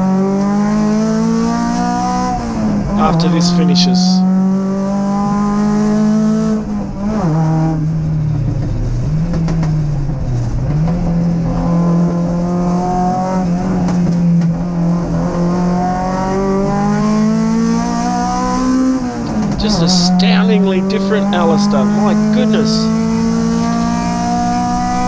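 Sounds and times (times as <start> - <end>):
race car engine: 0.0 - 25.0.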